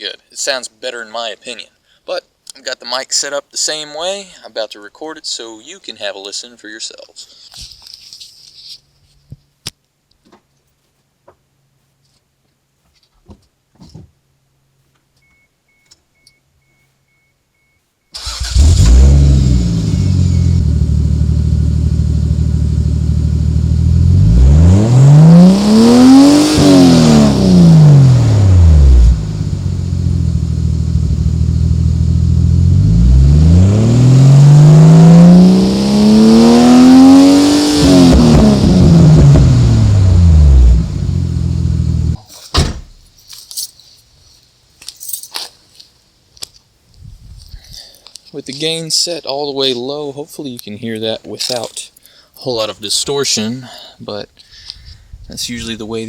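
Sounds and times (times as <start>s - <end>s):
car engine revving: 18.2s - 42.2s
car engine starting and idling: 18.2s - 43.0s.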